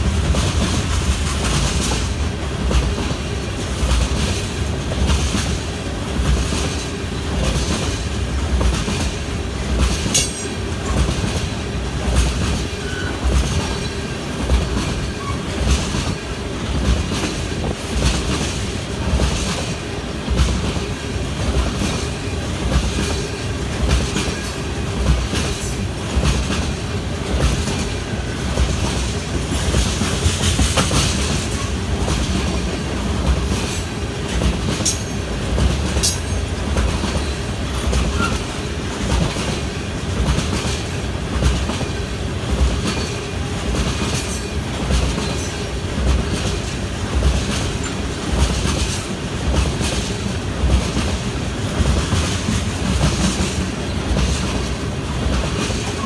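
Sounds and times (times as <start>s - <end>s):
freight train rumbling past: 0.0s - 56.0s
wheels clacking over rail joints: 0.0s - 56.0s
high wheel squeals: 12.8s - 14.0s.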